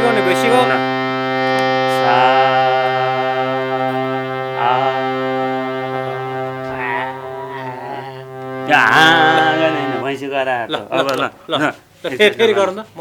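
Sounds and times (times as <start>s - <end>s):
person singing long held notes: 0.0s - 10.1s
harmonium drone: 0.0s - 10.3s.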